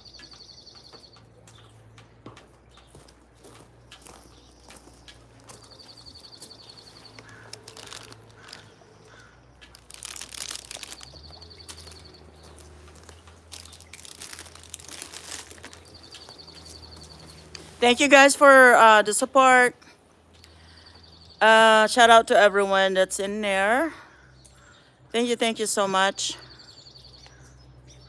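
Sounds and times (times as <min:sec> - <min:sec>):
rustling and crackling: 0:00.0 - 0:18.1.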